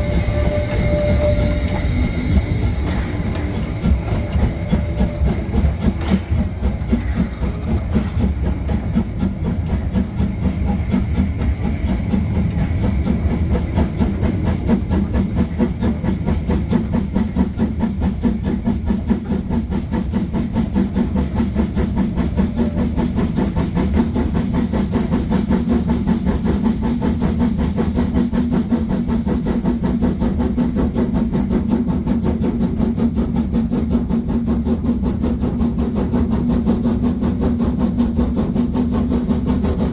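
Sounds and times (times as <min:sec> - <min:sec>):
rail noise: 0:00.0 - 0:39.9
steam locomotive exhaust chuffs: 0:00.0 - 0:39.9.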